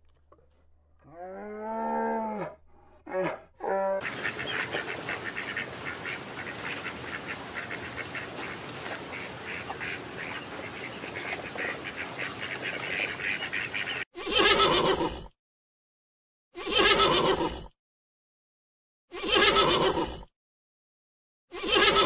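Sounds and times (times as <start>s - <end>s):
whistling ducks calling: 4.0s - 14.1s
pony whinnying: 14.2s - 15.3s, 16.6s - 17.7s, 19.1s - 20.3s, 21.5s - 22.0s.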